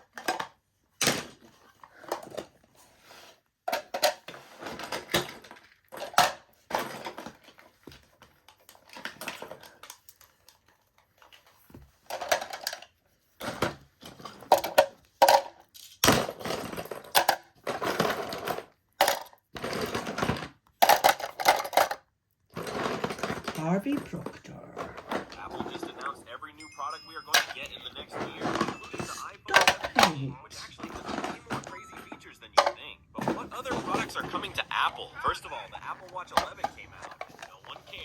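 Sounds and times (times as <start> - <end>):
plastic toys clattering: 0.0 - 38.0
packaging rustling: 27.1 - 38.0.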